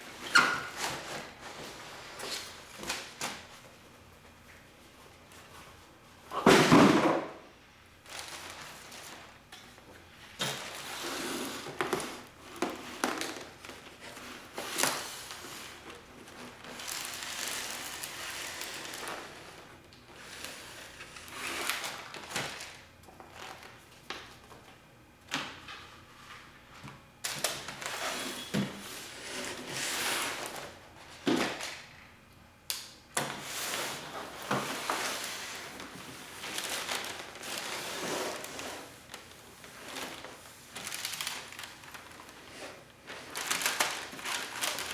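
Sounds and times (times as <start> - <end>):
packaging rustling and crinkling: 8.0 - 24.7, 33.3 - 44.9.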